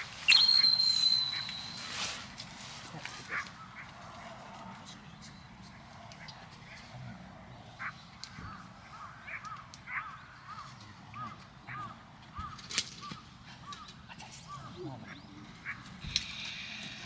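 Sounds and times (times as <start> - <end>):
bird calling in short notes: 0.3 - 2.2.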